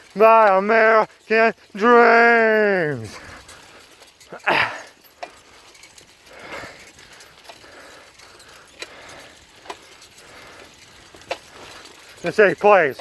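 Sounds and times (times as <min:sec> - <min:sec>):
bicycle frame clicks and knocks: 0:03.4 - 0:12.2.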